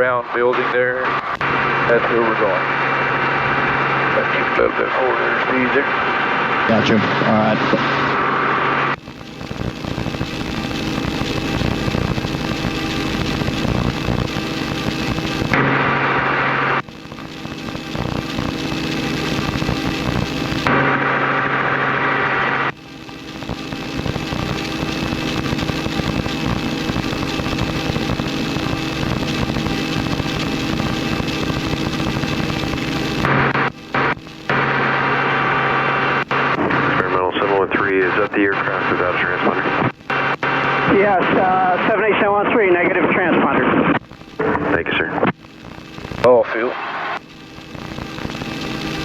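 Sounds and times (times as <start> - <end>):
faint steady whine: 0.0 - 49.0.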